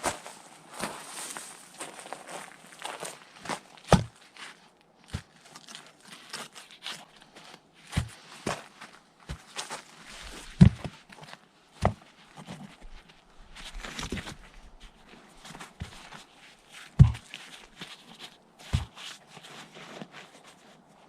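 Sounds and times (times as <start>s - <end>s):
scuffing and rustling: 0.0s - 21.0s
dull thumps: 3.9s - 4.2s, 10.4s - 10.9s, 16.9s - 17.3s, 18.7s - 19.0s.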